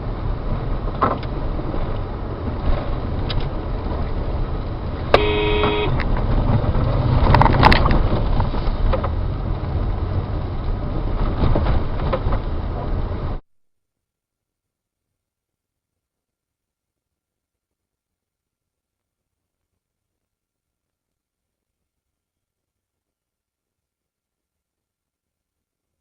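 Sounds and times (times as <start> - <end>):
car driving rumble: 0.0 - 13.4
car horn honking: 5.1 - 6.0.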